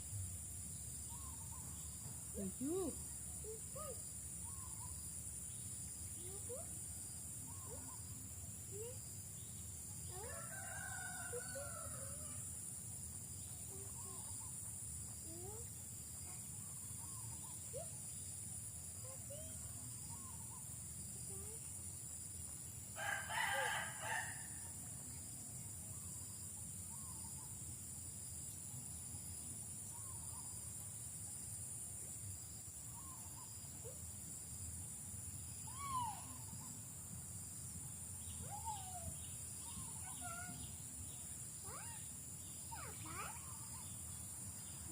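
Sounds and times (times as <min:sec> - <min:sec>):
insects trilling: 0:00.0 - 0:44.9
rooster crowing: 0:23.0 - 0:24.5.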